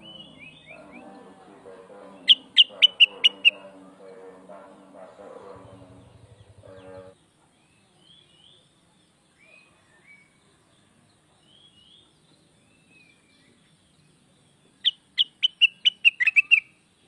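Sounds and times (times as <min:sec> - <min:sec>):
bulbul whistling calls: 0:00.0 - 0:07.1, 0:14.8 - 0:16.7
sharp accelerating bird notes: 0:00.0 - 0:07.2.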